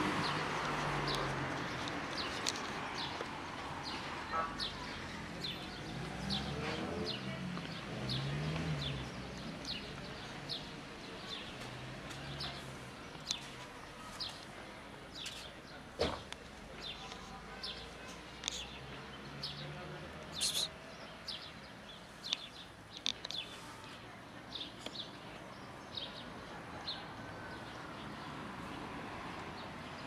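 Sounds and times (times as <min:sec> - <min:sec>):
small songbird chirping: 0:18.4 - 0:19.5.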